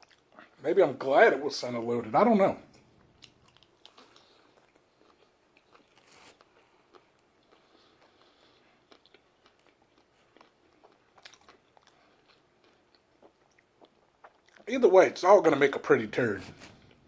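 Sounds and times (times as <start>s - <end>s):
man chewing food: 0.0s - 0.6s, 2.7s - 14.7s, 16.5s - 17.0s.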